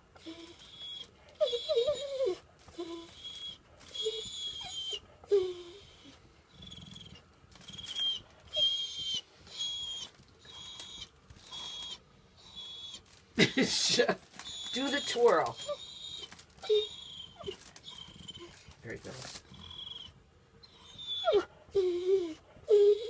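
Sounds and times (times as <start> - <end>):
dog whining with squeaky chirps: 0.2 - 13.2, 14.4 - 18.8, 19.5 - 23.0.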